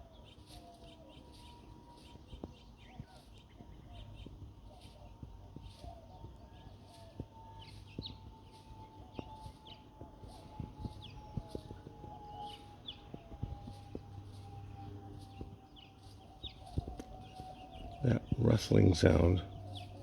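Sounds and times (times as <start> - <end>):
faint high hum: 0.0 - 20.0
faint ticks and rustles: 0.0 - 20.0
small birds chirping: 0.0 - 20.0.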